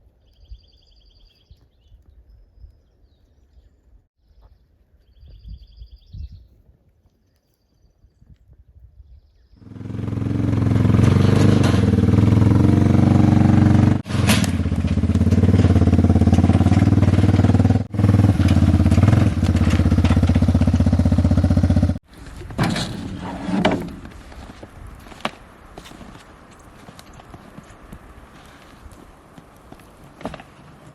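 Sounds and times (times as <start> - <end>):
engine running loudly: 9.6 - 22.0.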